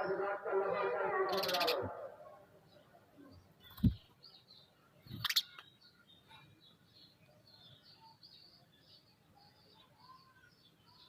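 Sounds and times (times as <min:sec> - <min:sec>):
faint bird chirping: 0:01.3 - 0:11.0.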